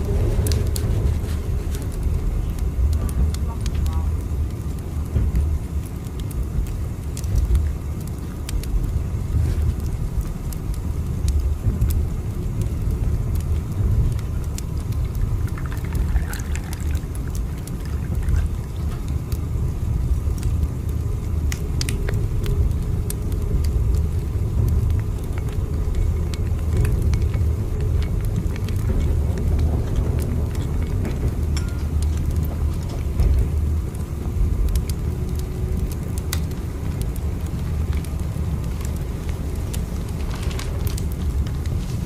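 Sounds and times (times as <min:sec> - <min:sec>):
train rumbling: 0:00.0 - 0:42.0
light clicks and ticks: 0:20.3 - 0:34.0, 0:34.6 - 0:41.8.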